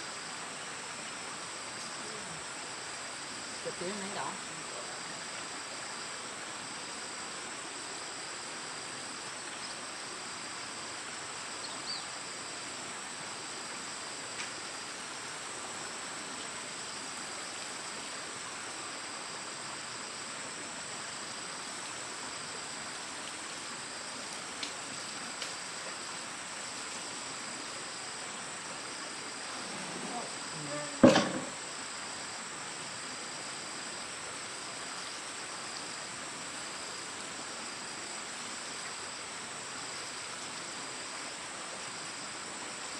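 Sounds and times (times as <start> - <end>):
insects chirring: 0.0 - 42.9
faint ticks: 24.2 - 25.6.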